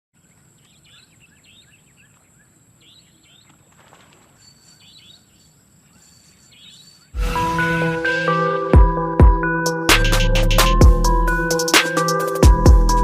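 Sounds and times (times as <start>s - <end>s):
small birds chirping: 0.2s - 7.2s.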